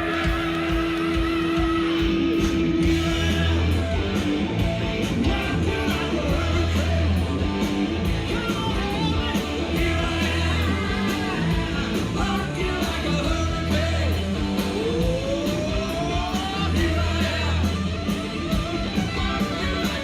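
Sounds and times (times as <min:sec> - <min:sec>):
bass guitar: 0:00.0 - 0:20.0
distorted electric guitar: 0:00.0 - 0:20.0
drums: 0:00.0 - 0:20.0
person singing: 0:08.2 - 0:17.9.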